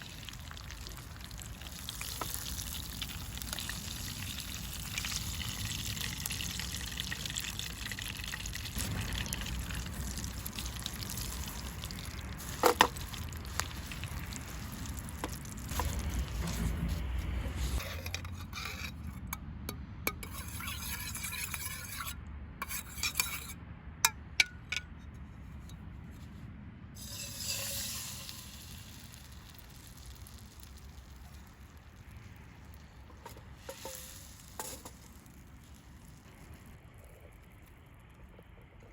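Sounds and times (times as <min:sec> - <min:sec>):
food frying in oil: 0:00.0 - 0:18.8, 0:27.0 - 0:38.0.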